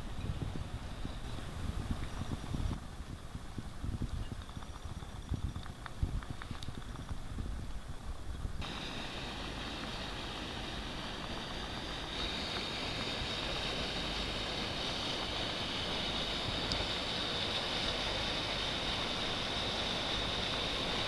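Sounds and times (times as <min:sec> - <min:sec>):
high steady hiss: 0:00.0 - 0:21.0
wind rumble on microphone: 0:00.0 - 0:21.0
sea water washing: 0:08.6 - 0:21.0.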